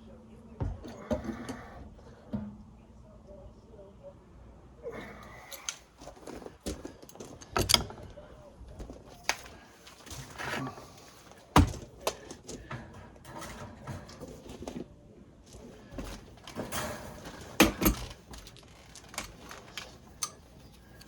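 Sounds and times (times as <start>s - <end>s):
tools and parts clattering: 5.4s - 21.0s.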